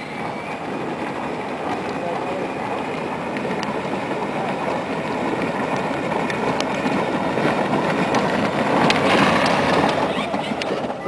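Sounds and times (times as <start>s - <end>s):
toy truck plastic wheels rumbling: 0.0s - 11.0s.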